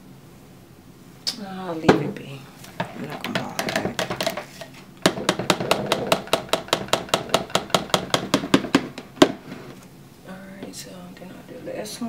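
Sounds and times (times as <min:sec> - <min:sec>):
louder knock: 0:05.0 - 0:09.4.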